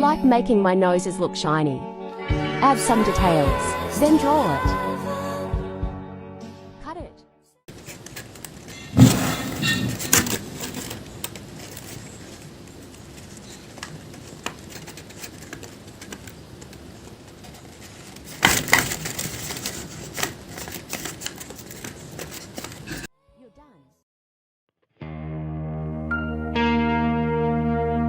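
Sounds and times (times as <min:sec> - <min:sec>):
paper rustling: 0:07.7 - 0:23.1
scissors snipping paper: 0:07.8 - 0:23.1.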